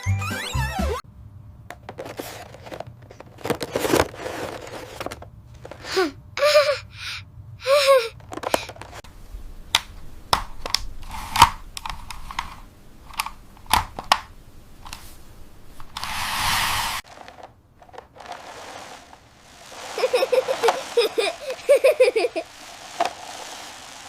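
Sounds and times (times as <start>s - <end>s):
burst of hissing: 16.0s - 17.0s, 18.5s - 24.0s.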